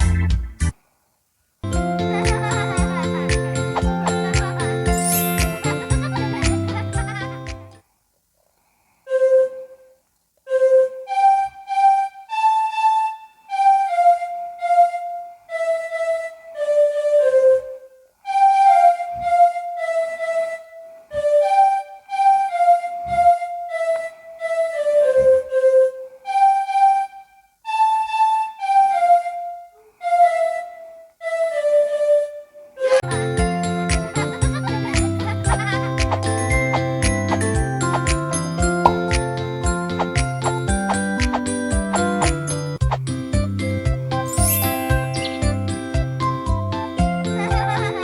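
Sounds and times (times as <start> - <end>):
flute-like solo melody: 1.6 - 7.8, 10.5 - 47.8
music with accompaniment: 1.6 - 7.8, 33.0 - 48.0.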